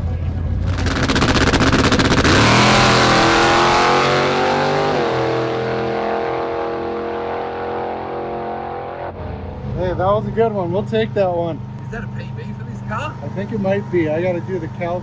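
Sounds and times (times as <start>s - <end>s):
drag race car engine crackling: 0.6s - 4.7s.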